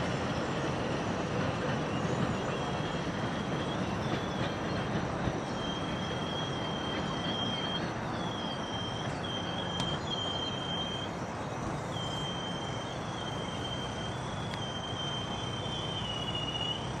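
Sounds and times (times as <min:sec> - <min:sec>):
distant train rumble on bridge: 0:00.0 - 0:17.0
thin high squeal: 0:05.4 - 0:17.0.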